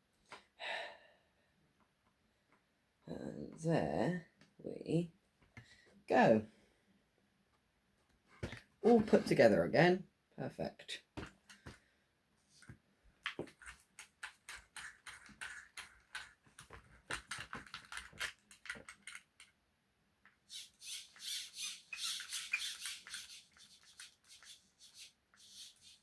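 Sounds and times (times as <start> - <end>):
rc car clicks and squeaks: 13.6 - 19.5, 20.5 - 26.0
rc car motor whirring: 20.5 - 26.0.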